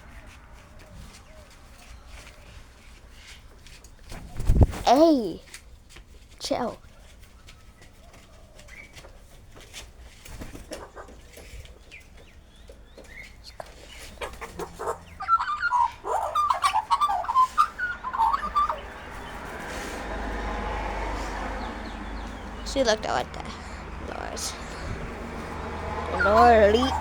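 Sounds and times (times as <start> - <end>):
birds chirping and clicking: 7.2 - 27.0
rapid bird chattering calls: 13.4 - 20.2, 21.5 - 27.0.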